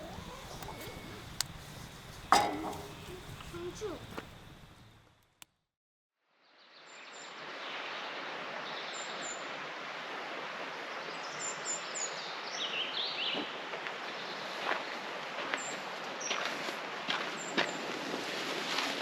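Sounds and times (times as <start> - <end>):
lower bird call: 0.0 - 4.2
steady wash of outdoor noise: 7.1 - 18.6.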